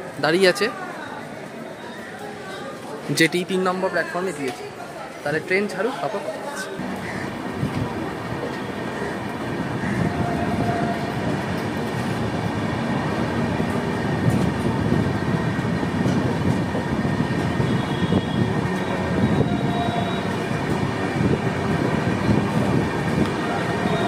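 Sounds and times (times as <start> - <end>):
train wheels rumbling on rails: 6.8 - 24.0.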